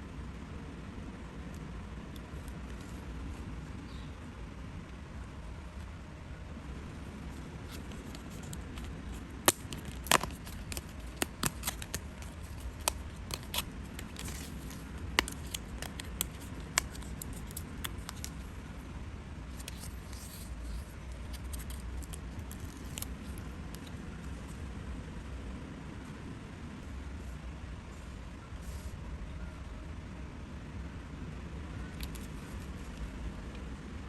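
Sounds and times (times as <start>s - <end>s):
paper rustling: 7.3s - 18.4s, 19.6s - 23.9s
scissors snipping paper: 7.7s - 18.4s, 19.6s - 23.9s.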